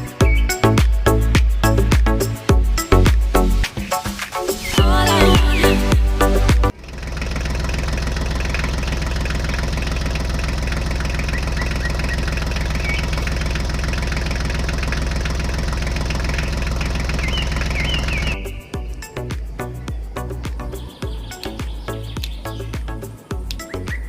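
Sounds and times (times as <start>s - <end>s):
engine running with rattle: 6.7s - 24.0s
faint bird chirps: 11.1s - 13.3s, 17.2s - 22.9s, 23.6s - 24.0s.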